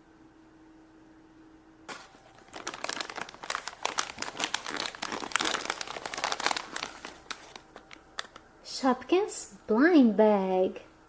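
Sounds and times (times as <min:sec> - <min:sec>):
packaging crinkling: 0:01.9 - 0:08.5.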